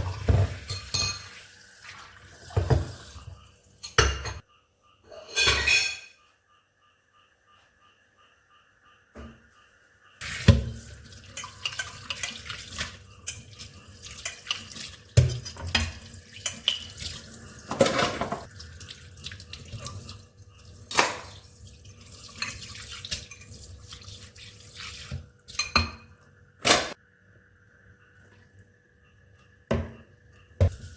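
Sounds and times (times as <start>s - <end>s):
crockery and utensils clinking: 0.2s - 1.4s, 5.1s - 6.2s, 11.2s - 18.5s, 25.5s - 26.2s.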